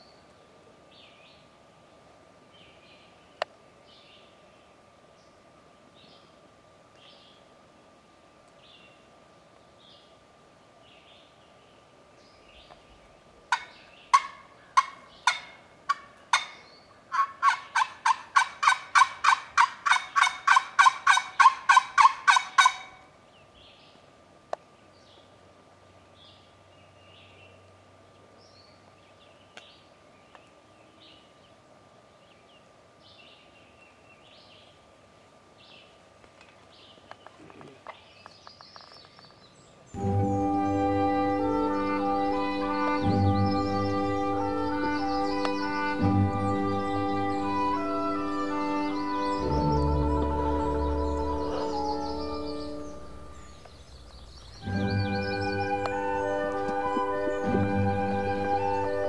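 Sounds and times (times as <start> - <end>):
small birds chirping: 8.5 - 21.8, 23.2 - 34.9, 35.6 - 41.0, 42.2 - 59.0
turkey yelping: 13.5 - 23.0.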